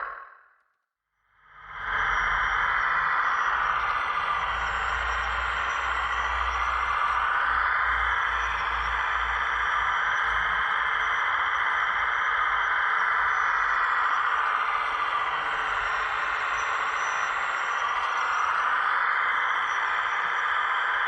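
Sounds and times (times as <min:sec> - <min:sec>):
hydraulic pump motor whine: 0:14.4 - 0:18.8.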